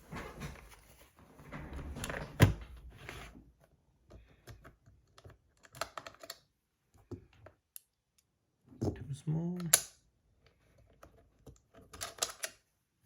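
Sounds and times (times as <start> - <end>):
hands rummaging through tools: 0.0 - 3.4.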